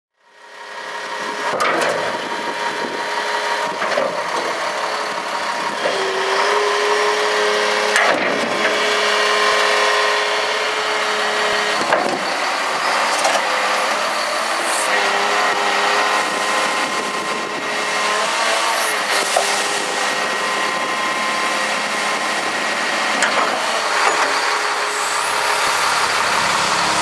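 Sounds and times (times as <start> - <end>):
diesel engine running: 0.2 - 27.0
steady whine: 7.6 - 27.0.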